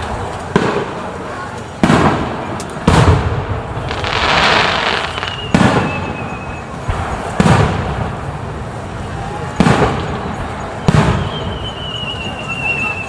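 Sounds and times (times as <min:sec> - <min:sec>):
crackling hiss of fireworks: 0:00.0 - 0:13.0
firework booms: 0:00.0 - 0:13.0
firework whistle: 0:03.9 - 0:07.8, 0:09.0 - 0:13.0.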